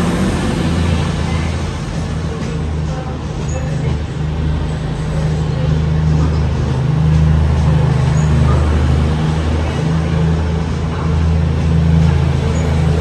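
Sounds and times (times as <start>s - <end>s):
train diesel engines droning: 0.0s - 13.0s.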